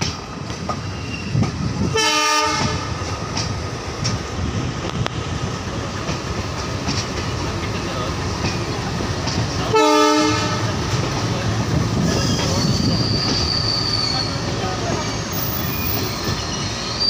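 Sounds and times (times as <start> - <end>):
train rumbling: 0.0 - 17.0
train horn: 1.9 - 2.9, 9.7 - 10.8.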